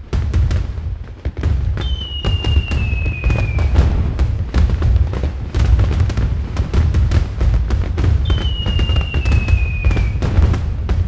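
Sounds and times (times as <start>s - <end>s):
deep rumbling boom: 0.0s - 11.0s
fireworks bangs and crackles: 0.0s - 11.0s
firework whistle falling in pitch: 1.8s - 3.9s, 8.2s - 10.3s.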